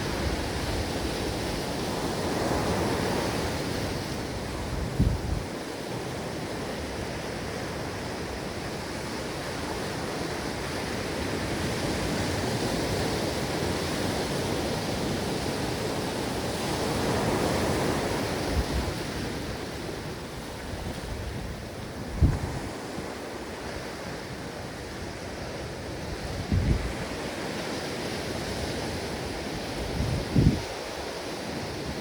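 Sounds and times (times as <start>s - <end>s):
wind on microphone: 0.0s - 5.8s, 16.6s - 32.0s
ocean waves breaking: 0.0s - 32.0s.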